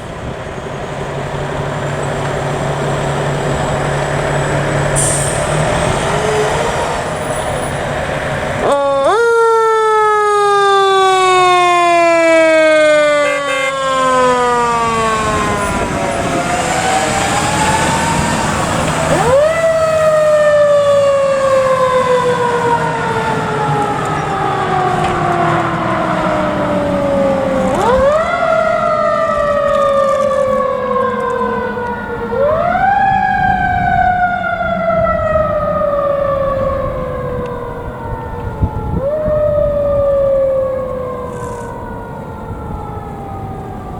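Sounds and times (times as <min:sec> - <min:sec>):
truck engine rumbling: 0:00.0 - 0:43.9
mechanical siren winding up: 0:40.8 - 0:41.9.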